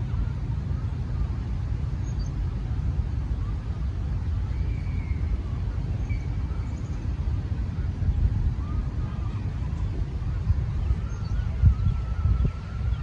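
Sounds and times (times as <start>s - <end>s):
low outdoor rumble: 0.0s - 13.0s
faint bird chirps: 4.4s - 13.0s.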